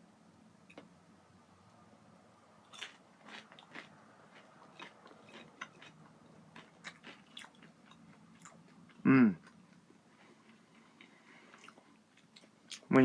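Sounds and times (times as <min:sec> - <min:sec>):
person chewing food: 0:02.7 - 0:12.9.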